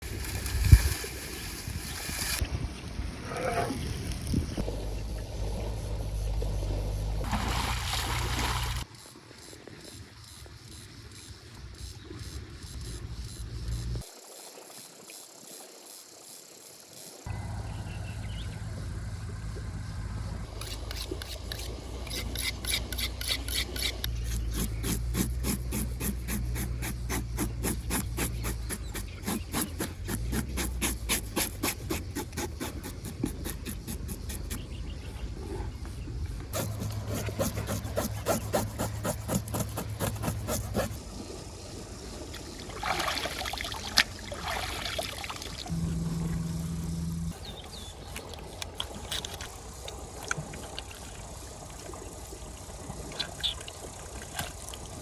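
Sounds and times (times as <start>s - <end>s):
steady low rumble: 45.7s - 47.8s.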